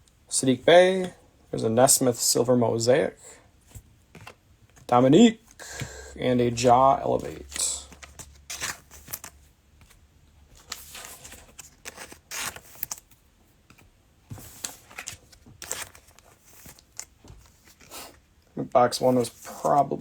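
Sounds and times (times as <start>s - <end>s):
cards being handled: 3.7s - 18.2s, 18.9s - 20.0s.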